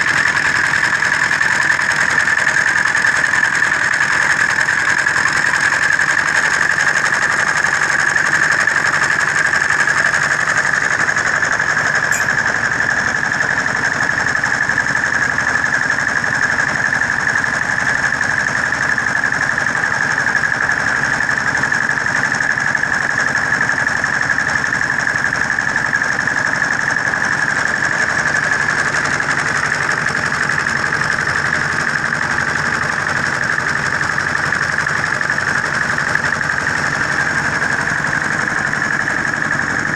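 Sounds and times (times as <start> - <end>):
diesel engine running: 0.0 - 39.9
constant high-pitched tone: 11.9 - 13.0.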